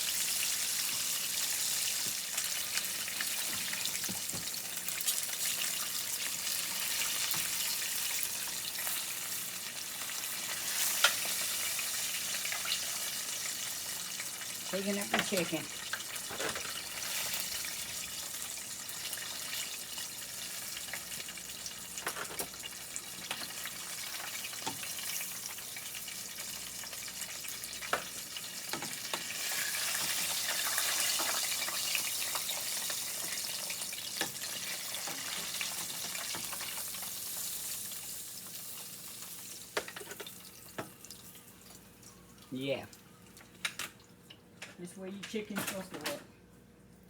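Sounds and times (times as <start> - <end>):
chicken sizzling in hot oil: 0.0 - 42.8.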